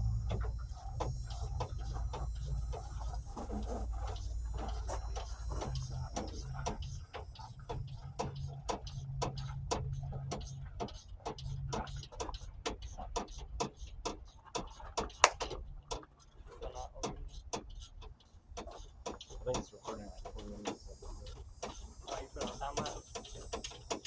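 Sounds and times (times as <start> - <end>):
low steady rumble: 0.0 - 12.6
socket ratchet clicking: 15.1 - 15.5.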